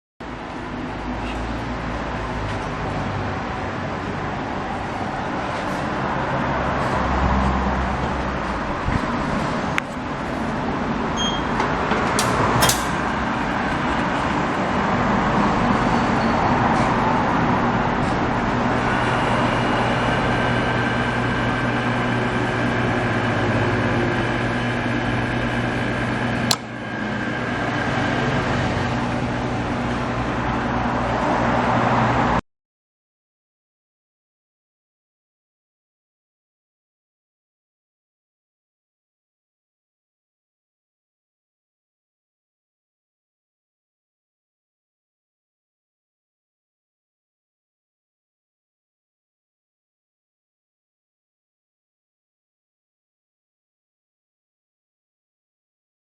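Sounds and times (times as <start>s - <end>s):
sharp clicks: 12.2s - 13.0s.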